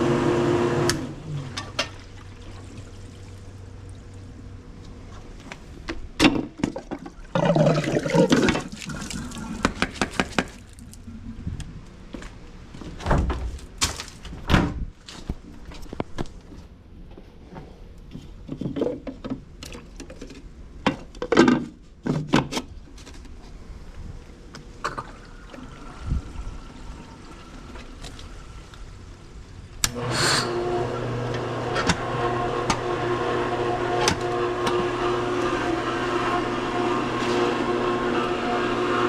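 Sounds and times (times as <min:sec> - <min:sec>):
pool pump motor humming: 0:00.0 - 0:05.8, 0:24.7 - 0:39.0.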